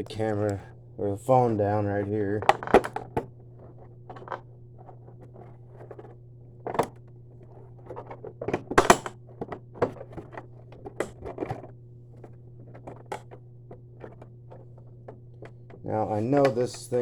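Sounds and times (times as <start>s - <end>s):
steady low hum: 0.0s - 17.0s
hard plastic clattering: 1.3s - 17.0s.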